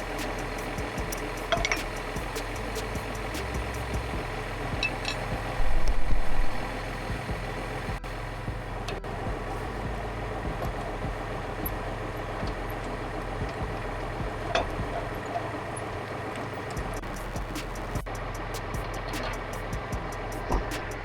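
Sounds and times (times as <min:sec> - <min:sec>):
low rumble: 0:00.0 - 0:21.0
tractor engine idling: 0:00.0 - 0:21.0
sharp metallic clicks: 0:12.4 - 0:21.0.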